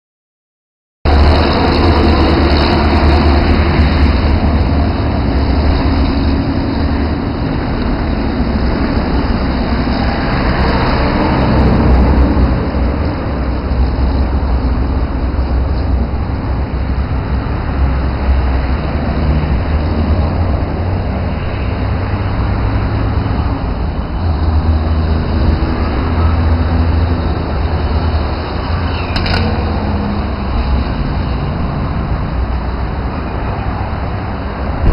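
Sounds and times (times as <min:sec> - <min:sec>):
light aircraft engine and propeller: 0:01.1 - 0:22.4
low rumble: 0:30.0 - 0:33.3, 0:34.4 - 0:34.9.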